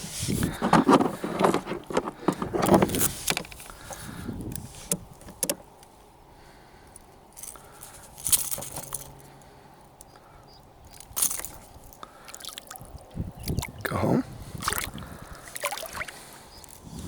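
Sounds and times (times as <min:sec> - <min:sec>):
jangling rattle with knocks: 0:07.4 - 0:09.3, 0:11.0 - 0:12.0.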